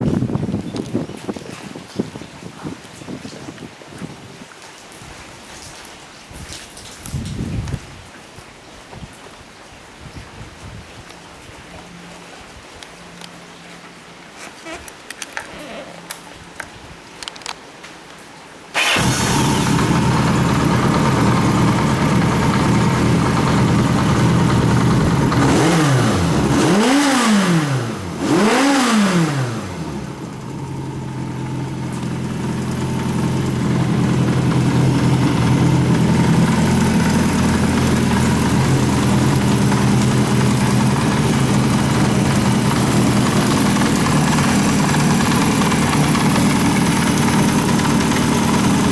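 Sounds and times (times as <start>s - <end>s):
motorcycle engine revving and idling: 18.8s - 48.9s.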